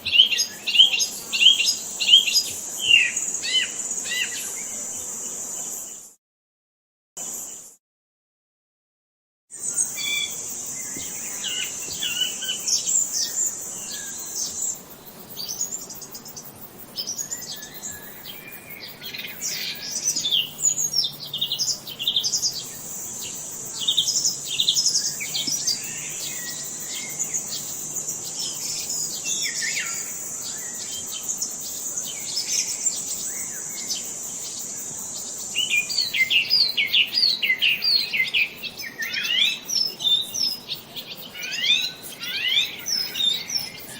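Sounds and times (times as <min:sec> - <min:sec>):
high-pitched insect buzz: 0:00.0 - 0:06.2, 0:09.5 - 0:43.9
birds chirping and calling: 0:09.6 - 0:43.9.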